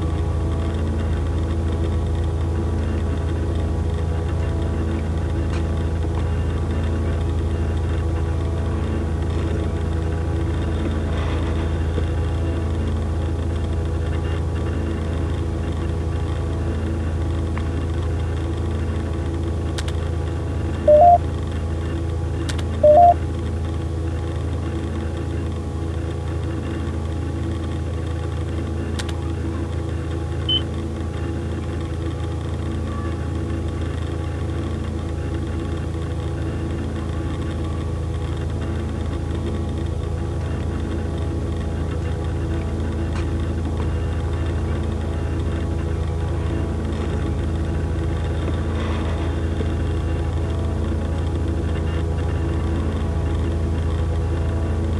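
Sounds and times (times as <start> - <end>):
low droning hum: 0.0 - 54.9
short electronic beeps: 20.9 - 21.2, 22.8 - 23.2.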